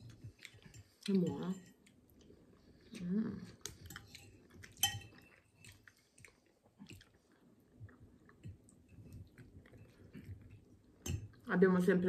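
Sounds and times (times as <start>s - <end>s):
chewing food: 0.0s - 11.4s.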